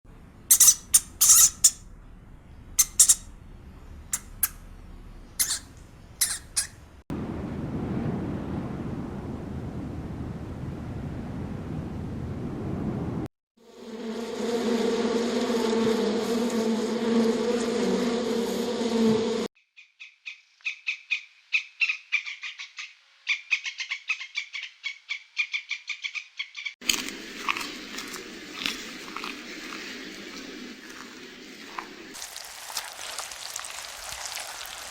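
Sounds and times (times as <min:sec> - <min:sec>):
small animal squeaking: 0:00.5 - 0:01.8, 0:02.8 - 0:03.3, 0:04.1 - 0:04.6, 0:05.4 - 0:06.8
low rumbling noise: 0:06.8 - 0:13.3
steady buzz: 0:13.7 - 0:19.5.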